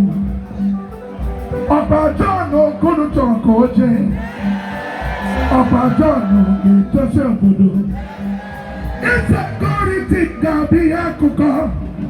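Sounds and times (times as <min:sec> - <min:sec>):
loud music: 0:00.0 - 0:12.0
person singing: 0:04.2 - 0:10.7.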